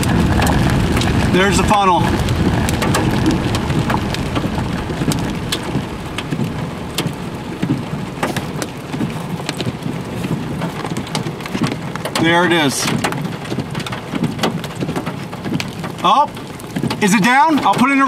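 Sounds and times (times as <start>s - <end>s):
low rumble: 0.0s - 13.0s
rain hissing on car: 0.0s - 18.0s
raindrops ticking on glass: 0.0s - 18.0s.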